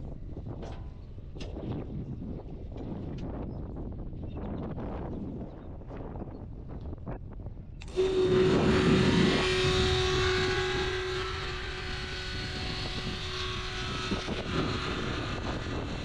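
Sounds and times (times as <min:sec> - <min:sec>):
tractor engine running: 0:07.8 - 0:16.0.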